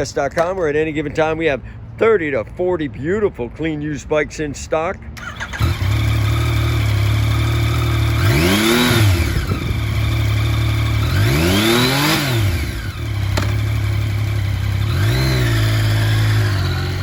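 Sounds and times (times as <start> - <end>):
motorcycle engine idling and revving: 5.2 - 17.0.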